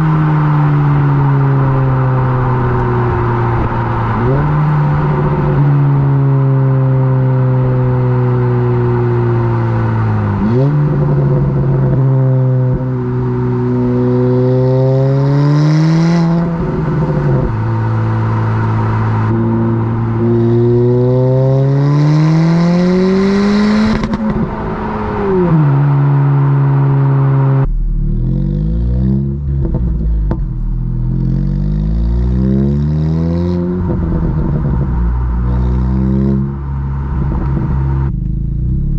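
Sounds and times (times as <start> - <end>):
car engine accelerating through gears: 0.0 - 38.9.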